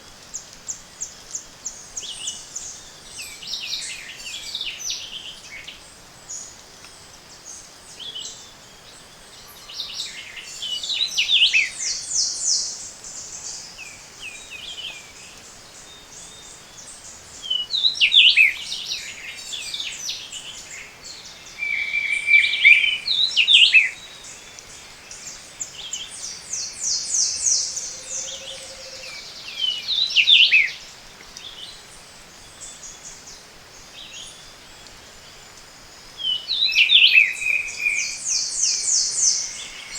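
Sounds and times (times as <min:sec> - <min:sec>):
steady background hiss: 0:00.0 - 0:39.9
birds singing: 0:07.9 - 0:39.9.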